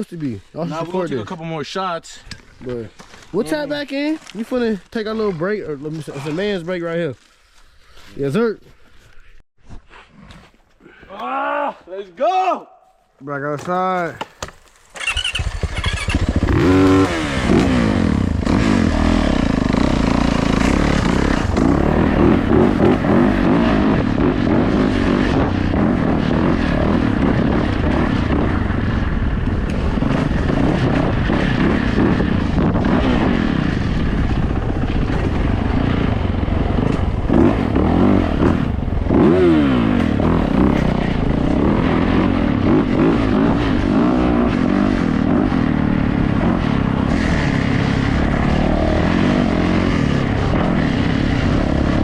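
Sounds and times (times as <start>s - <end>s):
dirt bike engine running: 14.7s - 52.0s.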